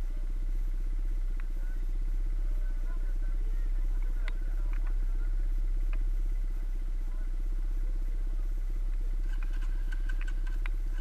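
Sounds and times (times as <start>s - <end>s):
motorcycle engine idling: 0.0s - 11.0s
light ticks: 1.3s - 1.6s, 4.0s - 5.0s, 5.9s - 6.1s, 8.9s - 11.0s.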